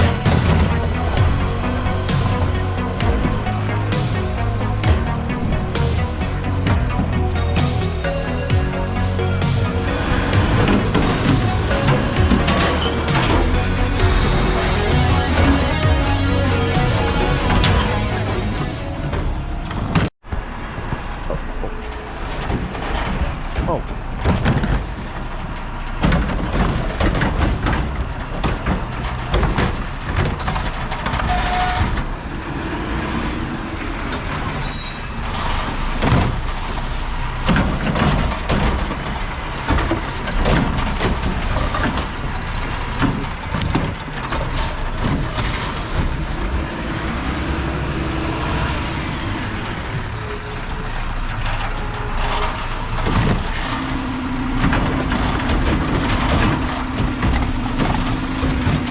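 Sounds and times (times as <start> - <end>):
truck diesel engine running: 0.0 - 20.1, 22.5 - 58.9
knocks and clatter: 0.0 - 21.4, 22.3 - 58.9
high squeals: 21.1 - 23.2, 31.2 - 37.4, 44.8 - 54.3.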